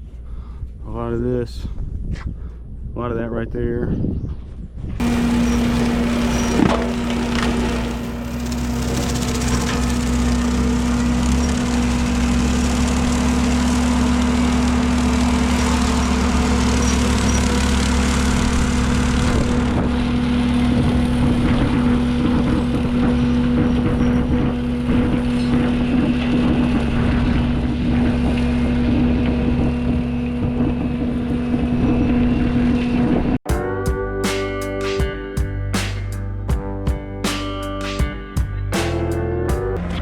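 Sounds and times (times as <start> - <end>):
brush cutter spinning: 5.0 - 19.9
diesel engine droning: 5.0 - 37.8, 38.4 - 40.0.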